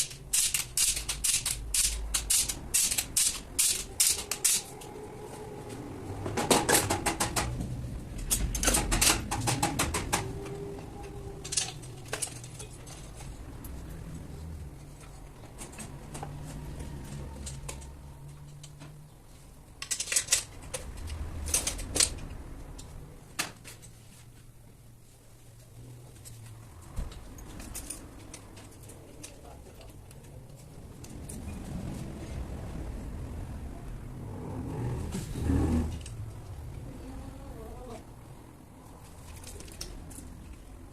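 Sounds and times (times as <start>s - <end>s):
hard parts clicking and tapping: 0.0s - 5.0s, 6.2s - 19.1s, 19.7s - 24.0s.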